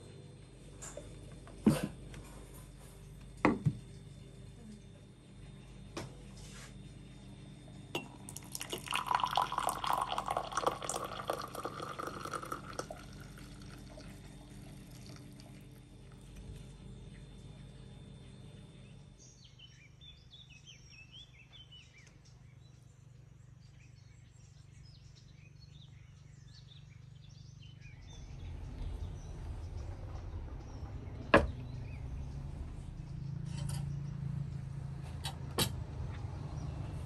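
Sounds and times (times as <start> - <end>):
small birds chirping: 8.6 - 35.2
low rumble: 27.9 - 35.0.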